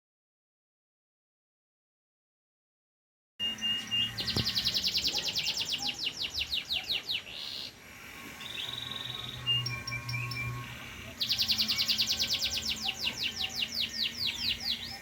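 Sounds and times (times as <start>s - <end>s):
canary singing trills: 3.4s - 15.0s.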